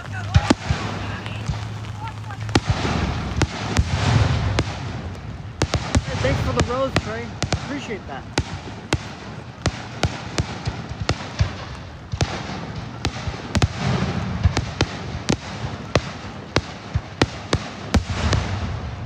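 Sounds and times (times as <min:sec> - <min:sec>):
raindrops tapping on car roof: 0:00.0 - 0:03.8
dull low rumbles: 0:00.0 - 0:19.0.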